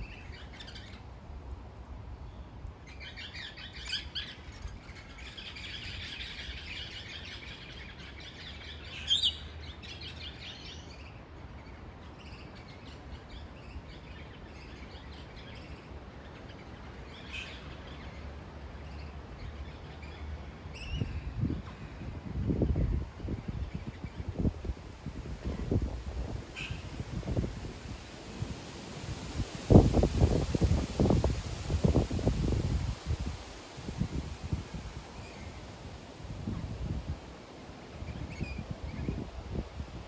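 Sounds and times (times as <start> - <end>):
wind rumbling on microphone: 19.2 - 40.0.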